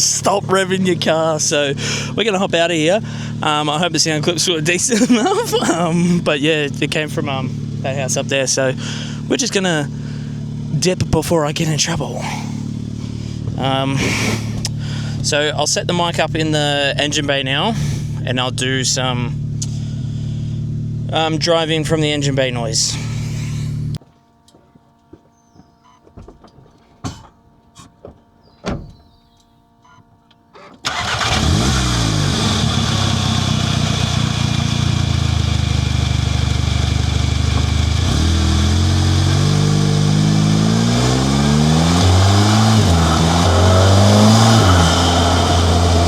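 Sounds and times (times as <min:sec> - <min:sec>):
car engine running and revving: 0:00.0 - 0:24.0, 0:30.9 - 0:46.0.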